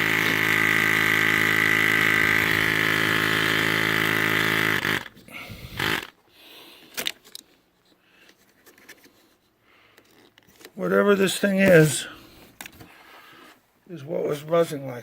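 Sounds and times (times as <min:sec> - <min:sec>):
loud electrical buzz: 0:00.0 - 0:06.1
clicks and handling noises: 0:06.8 - 0:10.8.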